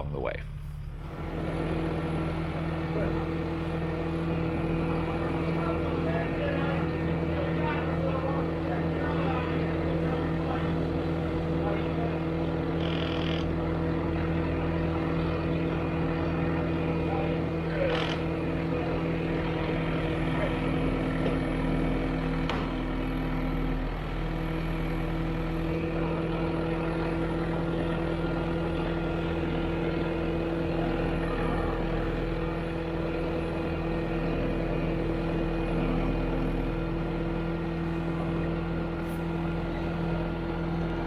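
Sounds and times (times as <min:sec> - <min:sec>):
engine running steadily: 0:00.0 - 0:41.0.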